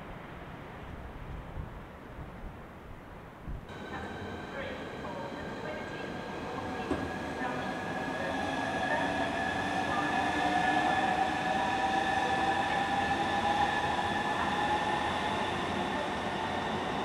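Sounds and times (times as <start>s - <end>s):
electric train whine: 3.7s - 17.0s
train wheels rumbling on rail: 3.7s - 17.0s.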